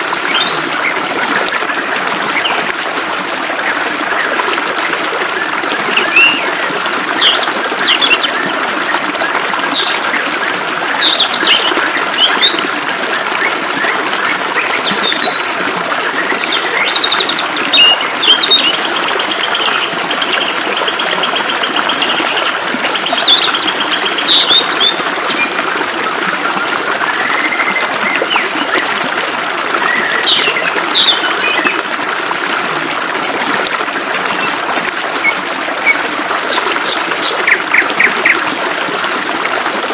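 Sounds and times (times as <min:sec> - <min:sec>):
birds chirping and whistling: 0:06.0 - 0:08.3, 0:09.7 - 0:12.6, 0:16.3 - 0:21.0, 0:23.1 - 0:25.5, 0:29.8 - 0:31.8.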